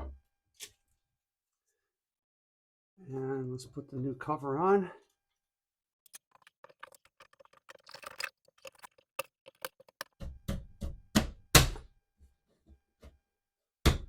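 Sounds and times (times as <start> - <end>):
plastic clicks and rattles: 6.1 - 10.2.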